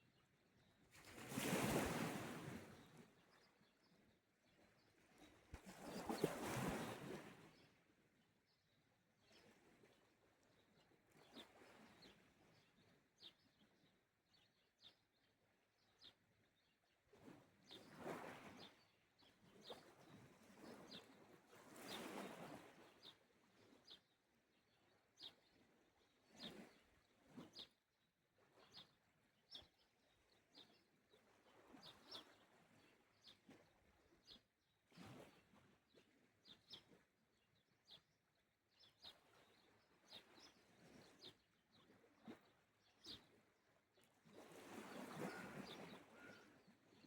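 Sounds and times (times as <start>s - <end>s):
small waves washing on shore: 1.0s - 2.8s, 5.6s - 7.4s, 44.3s - 46.6s.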